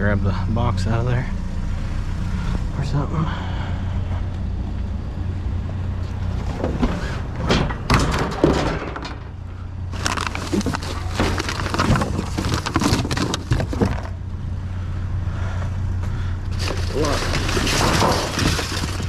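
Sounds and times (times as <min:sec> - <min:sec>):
steady low hum: 0:00.0 - 0:19.0
junk clattering in metal dumpster: 0:06.2 - 0:14.2, 0:16.5 - 0:19.0.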